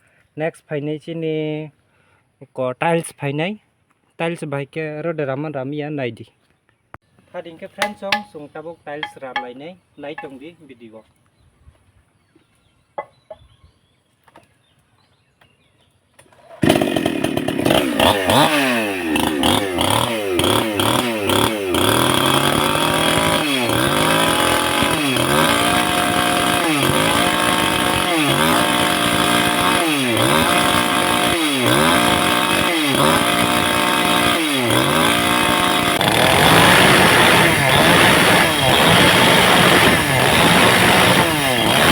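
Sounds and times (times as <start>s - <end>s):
chainsaw cutting tile: 7.8s - 8.4s, 16.5s - 41.9s.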